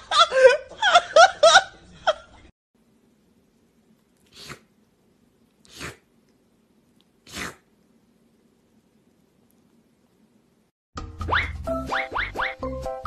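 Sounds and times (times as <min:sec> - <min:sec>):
kitten sneezing: 0:04.3 - 0:04.7, 0:05.6 - 0:06.1, 0:07.2 - 0:07.7.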